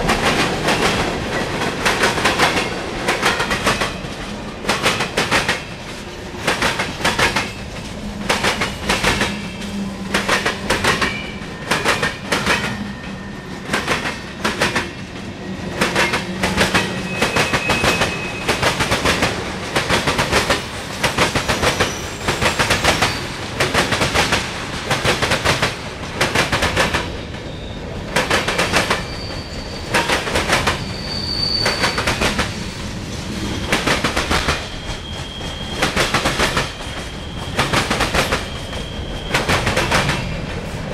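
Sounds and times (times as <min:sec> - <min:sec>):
train wheels clicking over rail joints: 0:00.0 - 0:27.3, 0:28.1 - 0:30.9, 0:31.5 - 0:40.9
high wheel squeals: 0:16.7 - 0:18.7, 0:21.5 - 0:23.4, 0:28.8 - 0:40.4.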